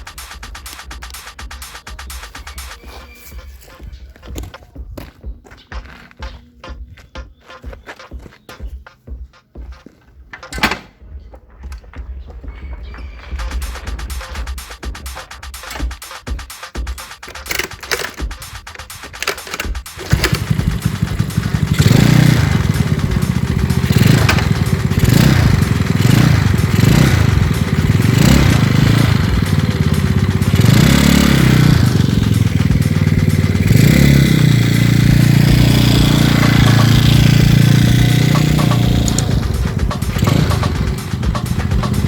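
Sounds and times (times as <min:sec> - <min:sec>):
scooter engine revving: 0:00.0 - 0:03.4, 0:13.3 - 0:42.0.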